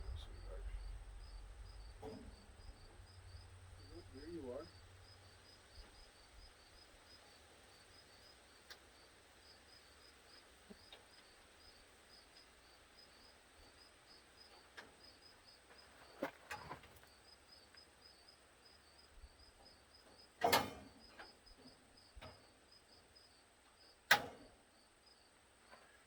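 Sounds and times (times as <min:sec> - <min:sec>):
faint insect chirping: 0:00.0 - 0:26.0
metal parts knocking and clunking: 0:20.4 - 0:21.0.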